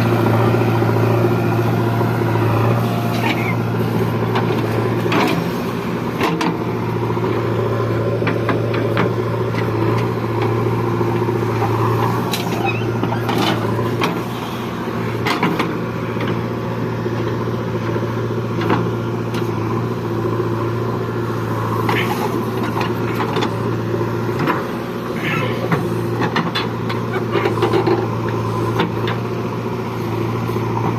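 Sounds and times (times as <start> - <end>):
heavy diesel engine running: 0.0 - 30.9
machinery knocks and clanks: 15.2 - 16.5, 25.7 - 29.3.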